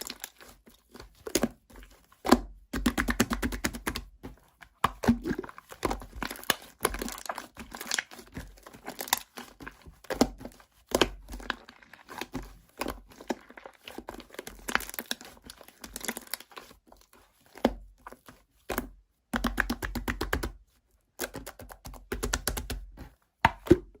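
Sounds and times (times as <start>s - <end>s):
crinkling and crackling: 0.0s - 2.5s, 4.1s - 18.9s.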